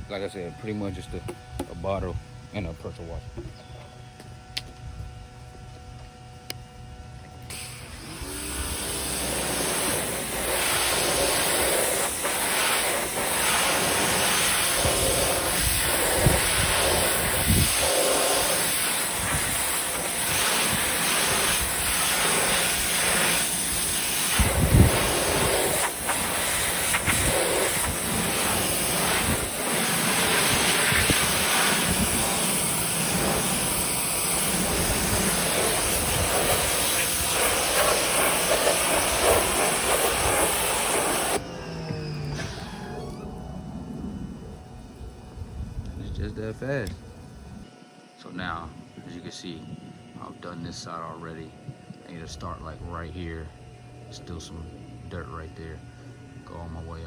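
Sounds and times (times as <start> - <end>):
pressure washer spraying siding: 7.5 - 43.7.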